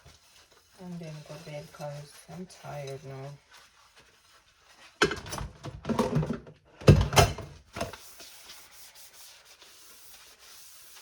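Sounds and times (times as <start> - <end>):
faint rubbing: 0.0 - 5.0, 8.0 - 11.0
household things knocking: 5.0 - 7.9.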